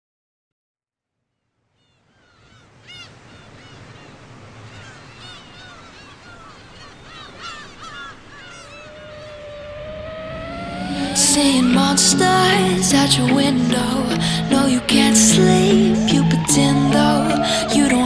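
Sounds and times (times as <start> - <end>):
seagulls squawking: 2.4 - 18.0
rising tone: 9.1 - 18.0
steady rush of noise: 9.3 - 18.0.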